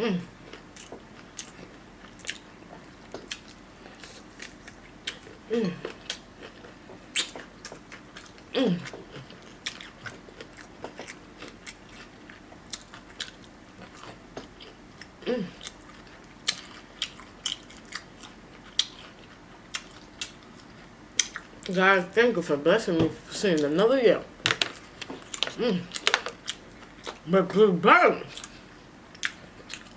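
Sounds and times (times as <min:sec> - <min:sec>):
person humming mm: 0:00.0 - 0:00.3, 0:05.5 - 0:05.9, 0:15.2 - 0:15.6, 0:25.6 - 0:25.9
person chewing food: 0:00.4 - 0:21.8, 0:24.4 - 0:27.3, 0:28.3 - 0:29.9.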